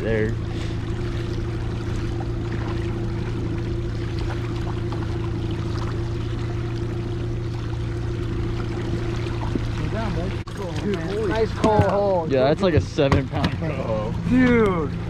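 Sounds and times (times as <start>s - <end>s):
boat moving through water: 0.0s - 15.0s
outboard motor humming: 0.0s - 15.0s.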